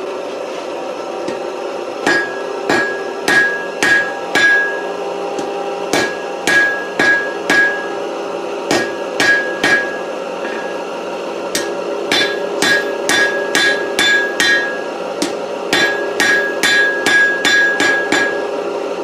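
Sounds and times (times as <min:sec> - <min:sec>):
steady hum: 0:00.0 - 0:19.0
hammer striking metal on anvil: 0:01.2 - 0:10.8, 0:11.5 - 0:18.5.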